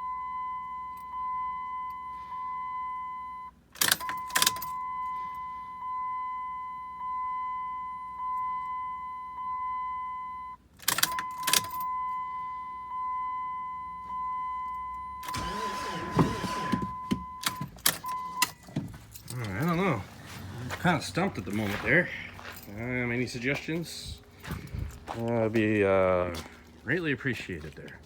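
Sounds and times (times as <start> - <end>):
high electronic warning tone: 11.1 - 20.1
rustling handling noise: 15.4 - 28.0.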